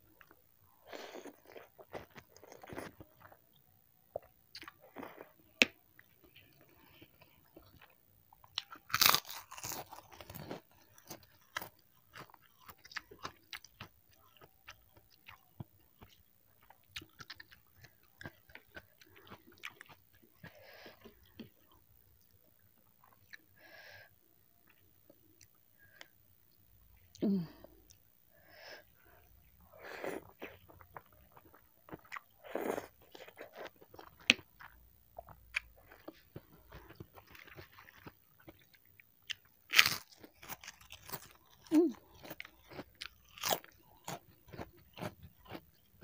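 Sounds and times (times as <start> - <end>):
cracker crunching: 7.6 - 15.4, 30.4 - 45.9.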